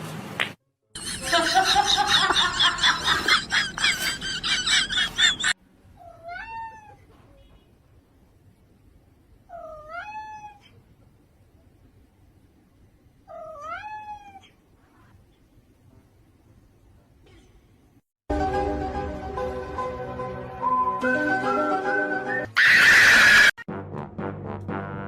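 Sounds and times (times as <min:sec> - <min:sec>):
cat meowing: 0:06.0 - 0:07.0, 0:09.5 - 0:10.7, 0:13.3 - 0:14.5.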